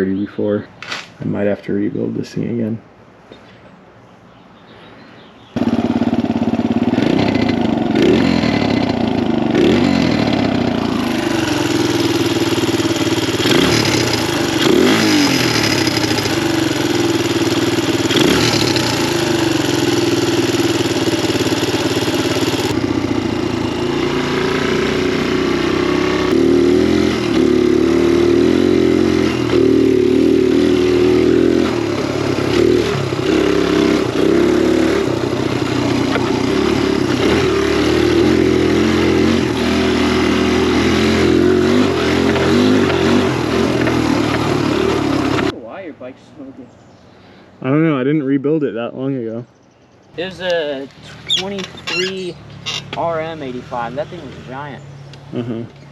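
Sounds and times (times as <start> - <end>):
dirt bike engine revving: 5.6 - 45.6, 50.2 - 55.9.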